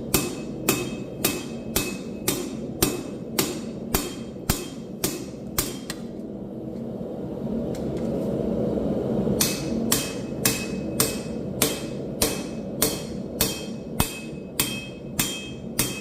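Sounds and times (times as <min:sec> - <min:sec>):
hammer striking steel on anvil: 0:00.0 - 0:06.1, 0:09.4 - 0:16.0.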